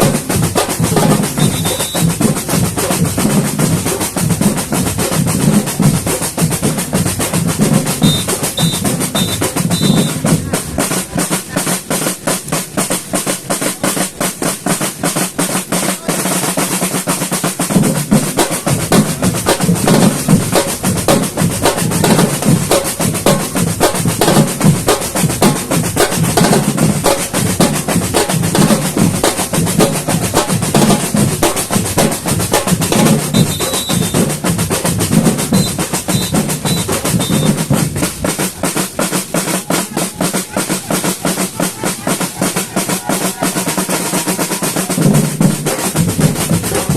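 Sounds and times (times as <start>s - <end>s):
snare drums fast rhythm: 0.0s - 46.9s.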